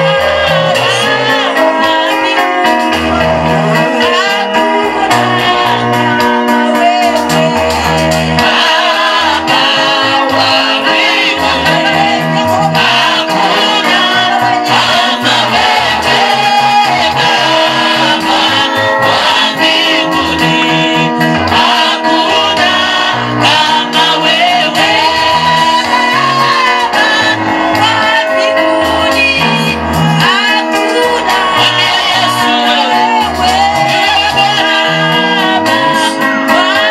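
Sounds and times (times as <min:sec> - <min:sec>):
voices singing gospel music: 0:00.0 - 0:36.9
pulsing bass line: 0:07.1 - 0:28.1.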